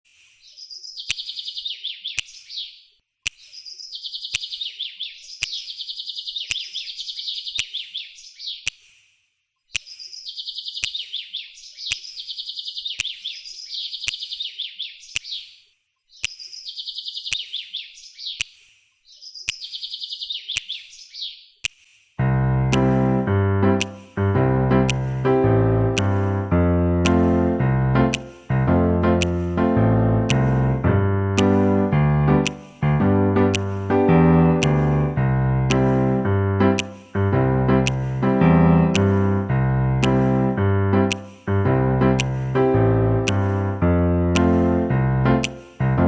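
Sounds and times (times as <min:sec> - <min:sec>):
sharp clicks: 0:01.0 - 0:02.5, 0:03.2 - 0:05.8, 0:06.4 - 0:06.9, 0:08.5 - 0:09.0, 0:09.7 - 0:11.2, 0:11.8 - 0:15.5, 0:16.2 - 0:17.6, 0:18.3 - 0:18.7, 0:19.4 - 0:21.0, 0:22.6 - 0:46.0
small bird trilling: 0:09.7 - 0:21.4.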